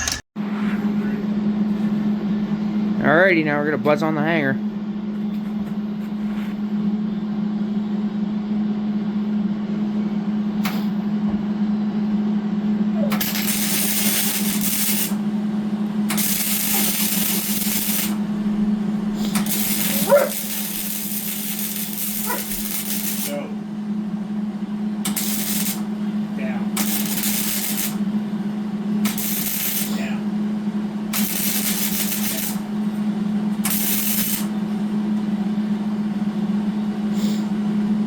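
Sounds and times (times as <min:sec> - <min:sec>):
steady low hum: 0:00.0 - 0:38.0
crackling hissing welding arc: 0:13.1 - 0:15.2, 0:16.1 - 0:23.6, 0:25.1 - 0:28.1, 0:29.0 - 0:30.2, 0:31.1 - 0:33.0, 0:33.6 - 0:34.7.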